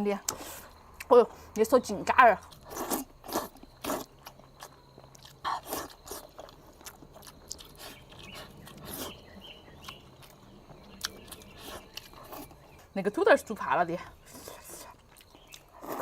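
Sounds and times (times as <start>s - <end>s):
person chewing: 2.4s - 12.8s, 14.2s - 16.0s.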